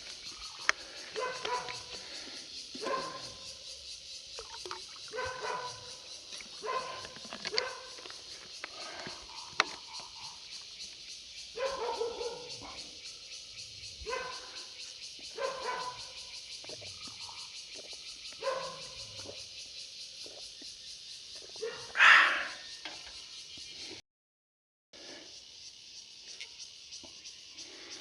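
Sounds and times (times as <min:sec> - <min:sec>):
dog barking and whining: 0:11.6 - 0:12.5.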